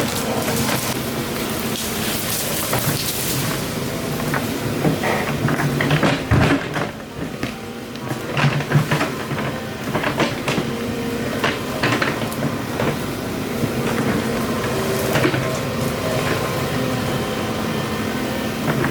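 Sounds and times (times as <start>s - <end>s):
engine running: 0.0s - 18.9s
knocks and clanks: 4.2s - 13.1s.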